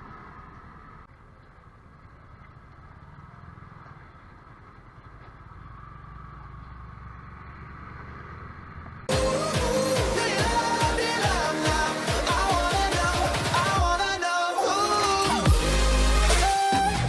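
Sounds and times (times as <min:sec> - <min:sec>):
motorcycle engine rumbling: 0:00.0 - 0:09.2.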